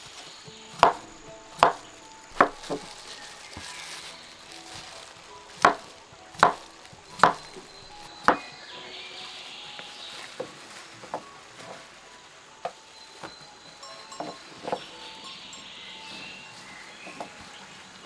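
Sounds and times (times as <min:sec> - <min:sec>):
knife chopping on cutting board: 0:00.7 - 0:02.9, 0:05.6 - 0:06.6.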